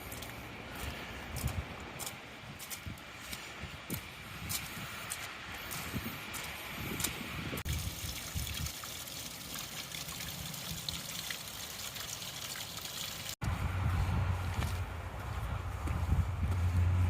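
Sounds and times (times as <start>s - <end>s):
water trickling: 7.6s - 13.4s.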